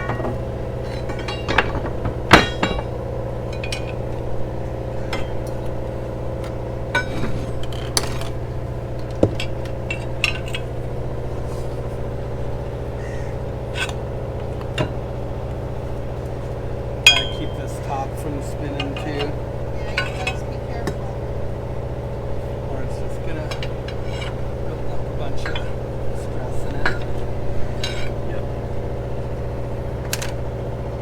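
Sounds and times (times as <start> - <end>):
crowbar clinking and scraping metal: 0.0 - 4.3, 17.1 - 20.5, 23.1 - 28.4
low machinery hum: 0.0 - 31.0.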